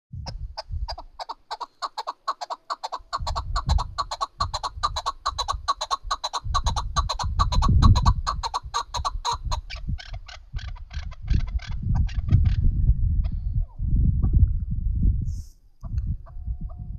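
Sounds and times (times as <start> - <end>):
partridge clucking call: 0.3 - 12.6.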